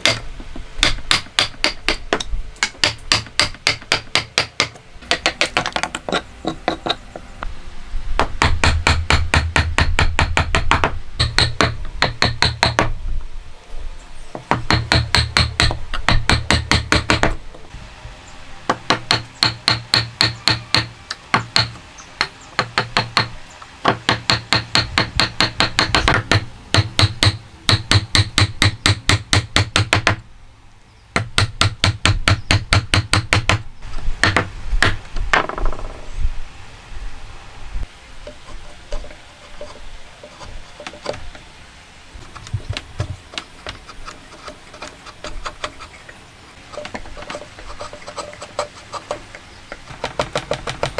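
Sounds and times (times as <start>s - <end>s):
hammer striking: 0.0s - 7.0s, 8.2s - 12.9s, 14.4s - 17.4s, 18.7s - 30.2s.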